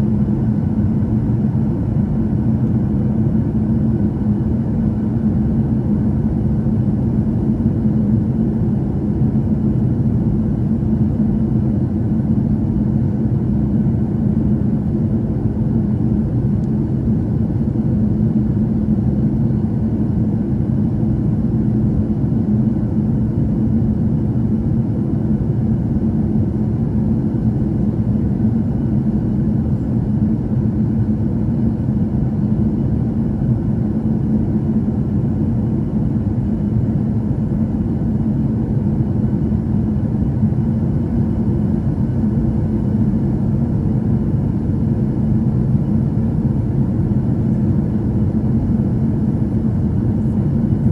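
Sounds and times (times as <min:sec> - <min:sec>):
faint steady hum: 0:00.0 - 0:50.9
jet engines low rumble: 0:00.0 - 0:50.9
airflow over fuselage: 0:26.7 - 0:50.9.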